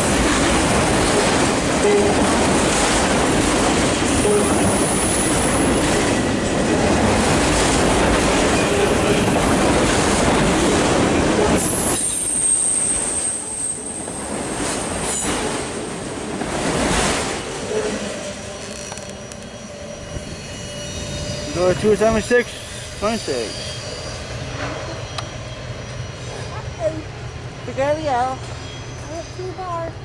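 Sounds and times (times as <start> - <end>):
freight cars rumbling on rails: 0.0 - 30.0
high wheel squeals: 11.6 - 14.2, 17.6 - 29.9.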